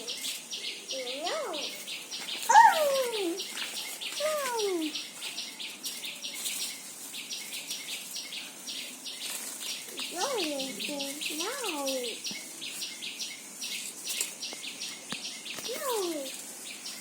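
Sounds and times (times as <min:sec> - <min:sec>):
rhythmic high-pitched chirping: 0:00.0 - 0:17.0
person calling out: 0:02.5 - 0:03.4.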